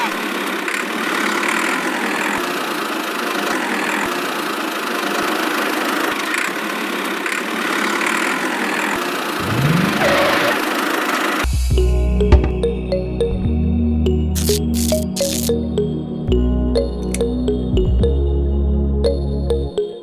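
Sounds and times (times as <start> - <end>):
small motor buzzing: 14.4 - 15.5.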